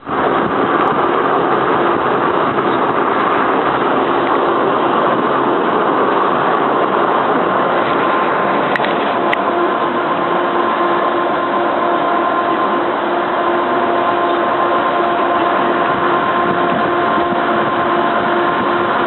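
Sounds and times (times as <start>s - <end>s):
diesel engines idling: 0.0s - 19.0s
faint steady hum: 0.0s - 19.0s.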